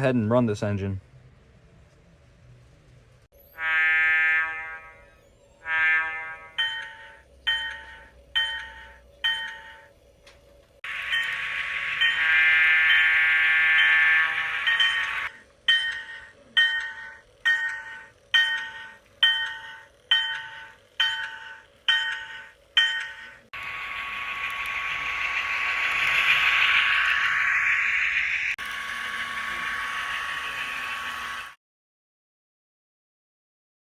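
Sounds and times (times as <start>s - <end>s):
locomotive horn blast: 3.6s - 5.0s, 5.6s - 6.6s
model locomotive bell ringing: 3.6s - 10.0s, 10.9s - 31.5s.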